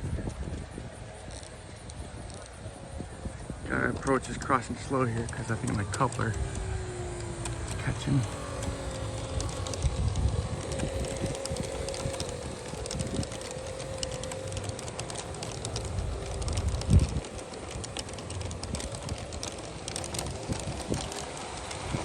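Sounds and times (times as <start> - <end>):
model train motors humming: 0.0 - 22.0
wheels clicking over track: 0.0 - 22.0.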